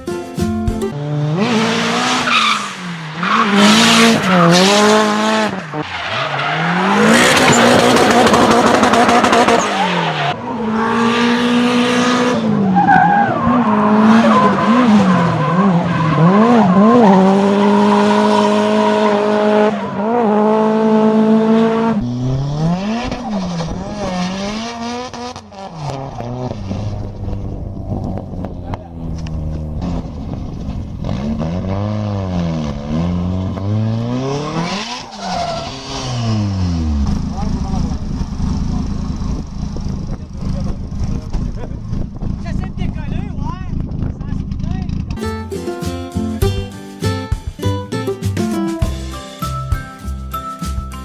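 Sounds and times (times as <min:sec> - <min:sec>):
car engine revving hard: 0:01.0 - 0:30.4, 0:31.0 - 0:42.4
tire squeal: 0:01.7 - 0:11.6, 0:12.2 - 0:20.5, 0:22.0 - 0:24.7, 0:33.3 - 0:37.4.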